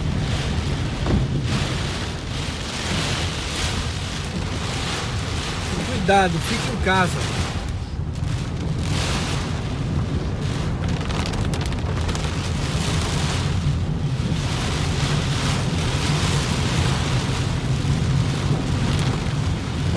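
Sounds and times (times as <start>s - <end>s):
heavy rain: 0.0s - 19.9s
floodwater splashing: 0.2s - 7.9s.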